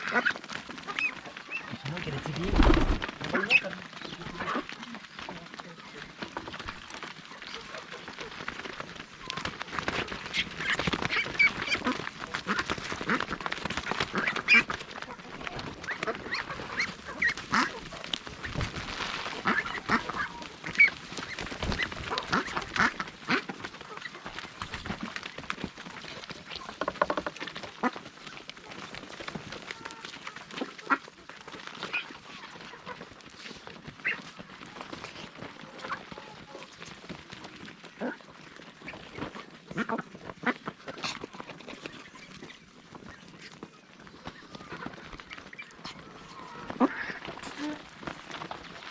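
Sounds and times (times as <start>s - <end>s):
ducks quacking: 0.0s - 5.4s, 10.2s - 25.1s, 27.0s - 28.1s, 29.7s - 36.8s, 37.5s - 42.4s, 43.2s - 48.6s.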